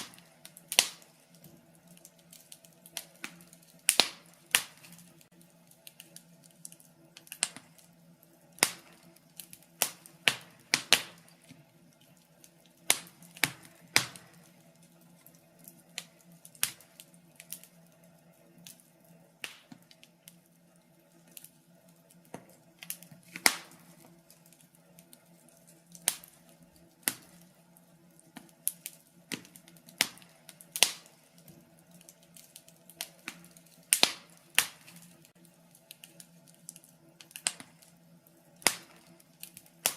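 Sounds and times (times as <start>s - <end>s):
faint steady hum: 0.0s - 39.9s
fire pops and snaps: 0.0s - 39.9s.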